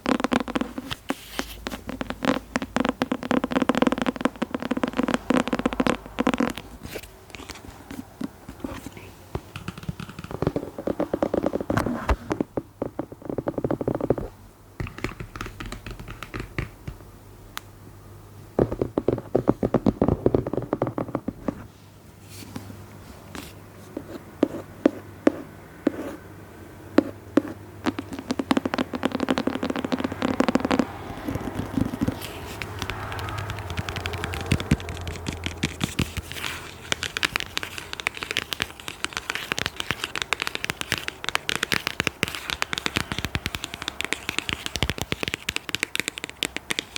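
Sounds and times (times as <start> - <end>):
scratchy rubbing: 0.0 - 14.3, 23.3 - 26.2, 27.0 - 46.9
sharp tapping on objects: 9.3 - 17.1, 27.0 - 46.9.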